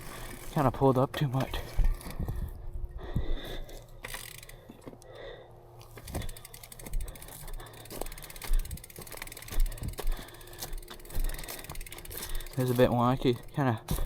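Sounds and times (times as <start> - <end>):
bicycle freewheel ticking: 0.0 - 0.8, 4.0 - 4.7, 5.9 - 14.0.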